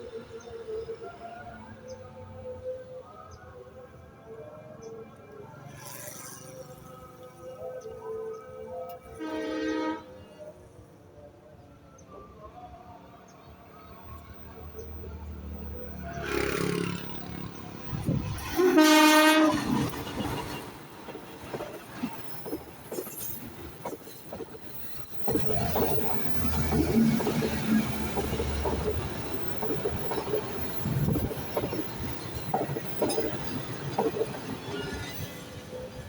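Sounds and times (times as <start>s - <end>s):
train horn blast: 9.0s - 10.4s, 18.4s - 20.0s
train carriages rumbling: 15.9s - 36.0s
wheels clicking over rail joints: 19.4s - 36.0s.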